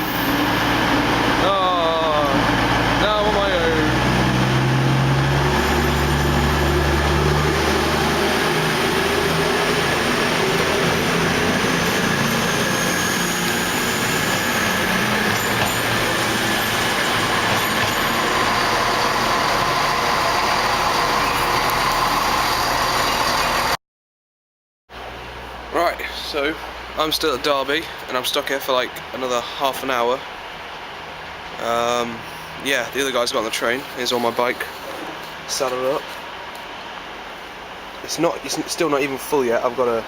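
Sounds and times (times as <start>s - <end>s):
train rumble and rush: 0.0s - 23.0s.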